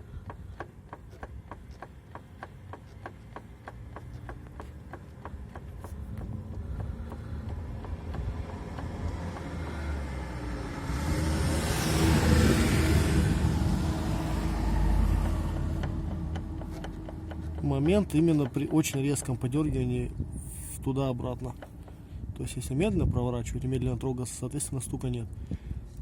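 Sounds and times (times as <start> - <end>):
car differential knocking: 0.0 - 10.4, 12.2 - 19.9, 20.5 - 22.6
passing car: 1.5 - 18.3.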